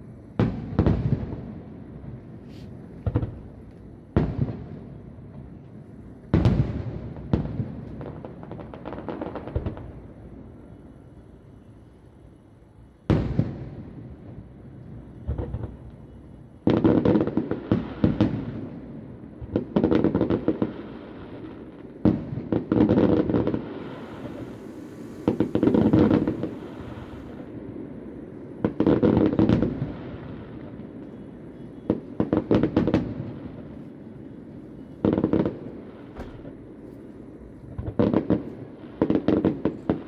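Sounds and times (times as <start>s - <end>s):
distant fireworks bangs and crackling: 0.0s - 40.0s.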